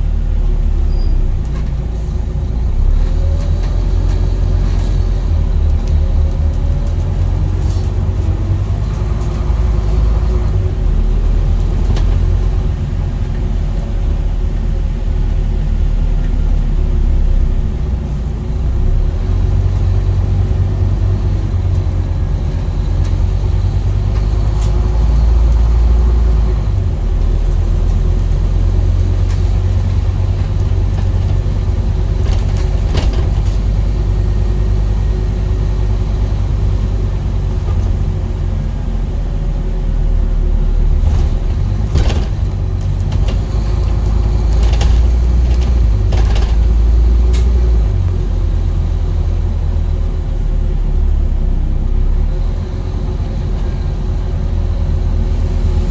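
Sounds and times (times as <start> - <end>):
bus diesel engine rumbling: 0.0 - 55.9
sharp knocks and rattles: 27.1 - 34.3, 41.0 - 48.0.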